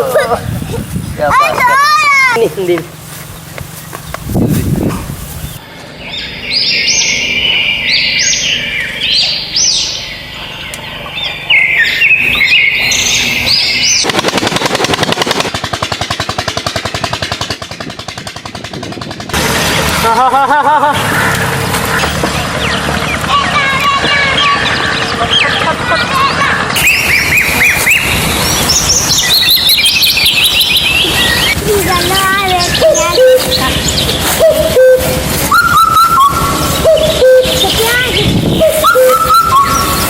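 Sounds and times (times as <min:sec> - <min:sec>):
birds chirping: 0:00.0 - 0:40.0
wavering pitched call: 0:05.5 - 0:14.1, 0:21.0 - 0:40.0
fast rattling pulse: 0:13.3 - 0:20.2.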